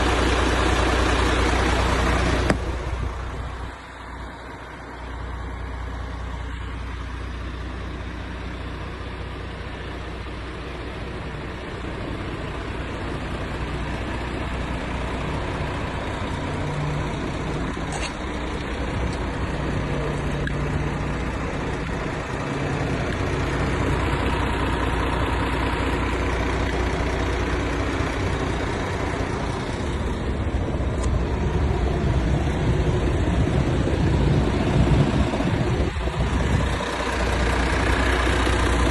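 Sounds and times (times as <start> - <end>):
truck diesel engine running: 0.0 - 38.9.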